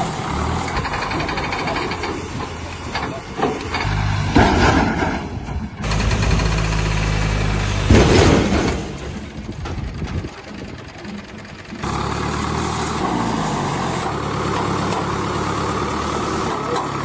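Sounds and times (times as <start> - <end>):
diesel engine under load: 0.0 - 17.0
loud working noise: 0.0 - 17.0.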